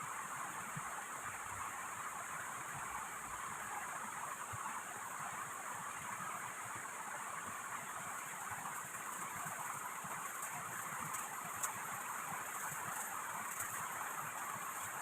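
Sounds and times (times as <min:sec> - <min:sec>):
rushing river water: 0:00.0 - 0:15.0
heavy rain: 0:07.9 - 0:15.0.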